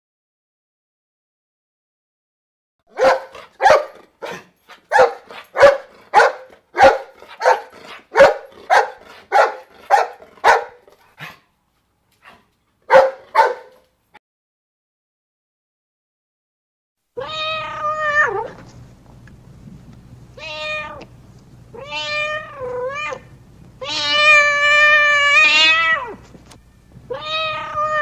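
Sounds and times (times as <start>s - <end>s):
dog barking: 2.9s - 11.4s, 12.3s - 13.9s.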